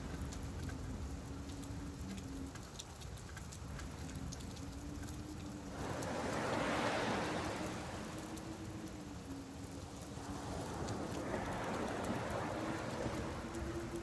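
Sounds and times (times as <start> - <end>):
rain on a beach: 0.0 - 14.0
wave washing up: 4.2 - 14.0.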